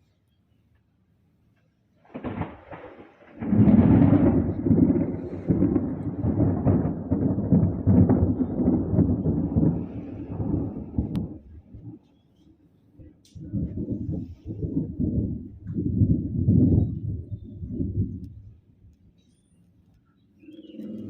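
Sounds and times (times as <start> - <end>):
rolling thunder with crackling: 2.0 - 12.0, 13.3 - 19.0.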